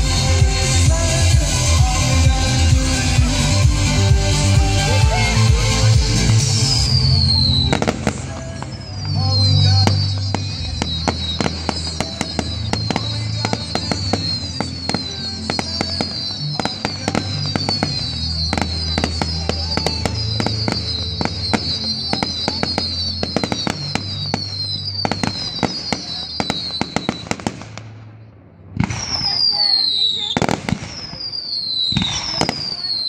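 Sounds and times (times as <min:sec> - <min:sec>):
loud music with bass line: 0:00.0 - 0:11.4
fireworks bangs and crackles: 0:00.0 - 0:33.0
fireworks falling whistles: 0:00.0 - 0:33.0.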